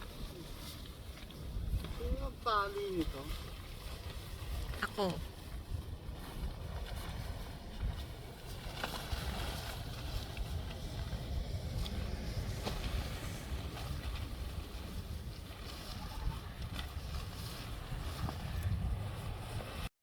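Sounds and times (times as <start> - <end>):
strong wind buffeting microphone: 0.0 - 19.9.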